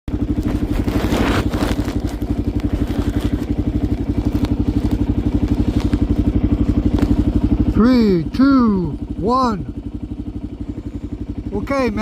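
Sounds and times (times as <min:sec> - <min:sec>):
rustle or clatter: 0:00.1 - 0:07.3
motorcycle engine idling: 0:00.1 - 0:12.0.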